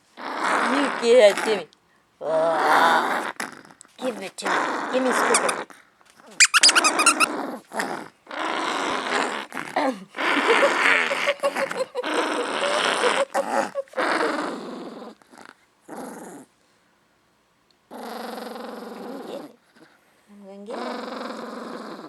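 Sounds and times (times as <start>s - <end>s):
dog growling: 0.2s - 16.5s, 17.9s - 20.0s, 20.6s - 22.0s.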